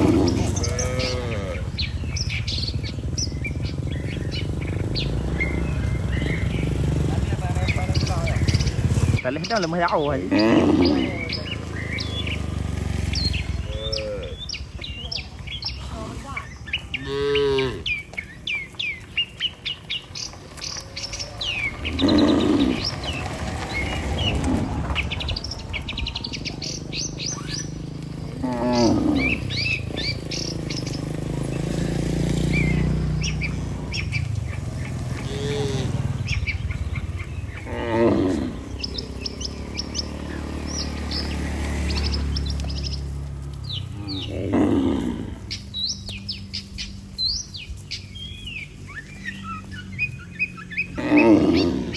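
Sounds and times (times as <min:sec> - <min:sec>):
cattle mooing: 0:00.0 - 0:09.2, 0:10.0 - 0:14.6, 0:15.8 - 0:18.0, 0:21.0 - 0:42.7, 0:43.8 - 0:45.7, 0:50.5 - 0:51.9
small birds chirping: 0:00.0 - 0:51.9.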